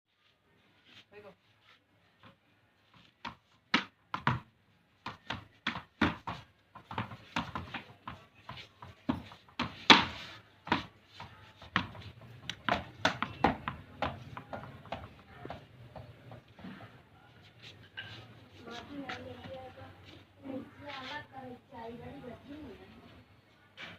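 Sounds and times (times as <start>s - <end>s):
cricket bat knocking ball: 3.3s - 4.5s, 5.1s - 7.9s, 9.1s - 10.9s, 11.6s - 15.6s.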